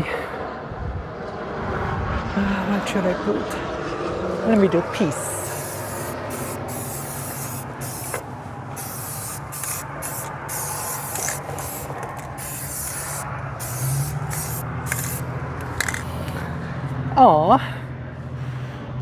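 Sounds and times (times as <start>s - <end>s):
steady low hum: 0.0s - 19.0s
spray paint can hissing: 5.3s - 16.2s.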